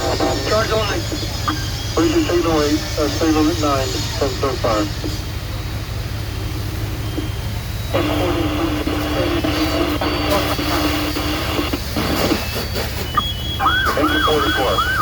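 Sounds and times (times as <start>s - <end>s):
steady low rumble: 0.0s - 12.3s
fire truck air horn blast: 7.9s - 15.0s.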